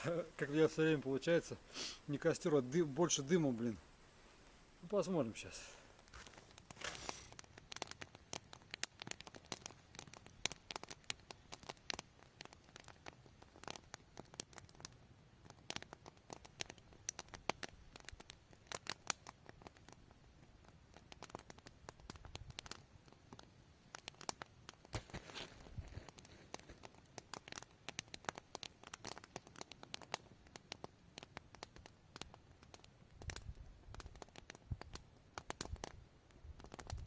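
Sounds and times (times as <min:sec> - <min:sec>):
twigs crackling and snapping: 0:00.1 - 0:14.9, 0:15.5 - 0:36.0, 0:36.6 - 0:37.0.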